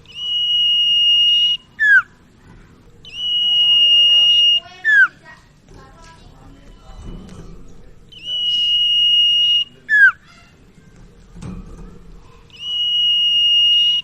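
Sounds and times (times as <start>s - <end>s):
bird whistling song: 0.0s - 2.2s, 3.0s - 5.2s, 8.1s - 10.4s, 12.5s - 14.0s.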